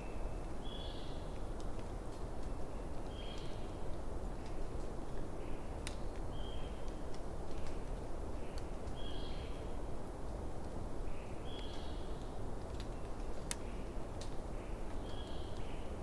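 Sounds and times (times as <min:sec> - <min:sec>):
fire crackles and pops: 0:01.3 - 0:09.0, 0:11.5 - 0:15.7.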